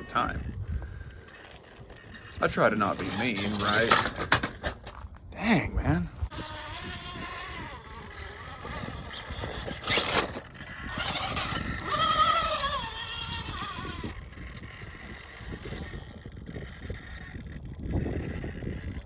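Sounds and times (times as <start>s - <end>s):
electric motor and gears whining: 0.0s - 19.0s
short clatter: 1.1s - 5.2s.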